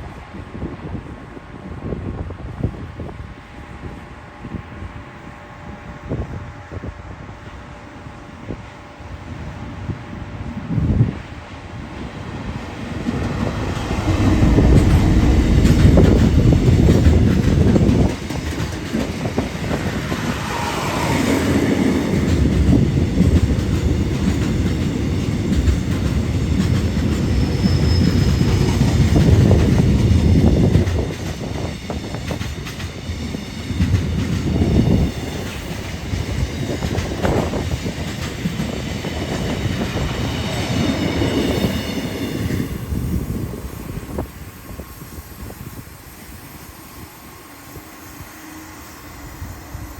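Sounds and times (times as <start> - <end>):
train wheels rumbling on rails: 0.0 - 49.9
clacks over rail joints: 13.0 - 20.4
high wheel squeal: 27.3 - 28.8.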